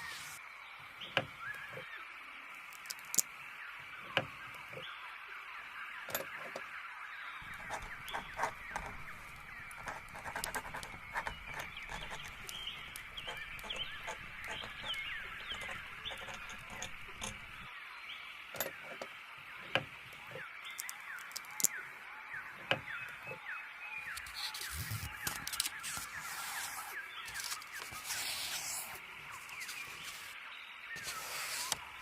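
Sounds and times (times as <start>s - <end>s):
small songbirds chirping: 0.0s - 32.0s.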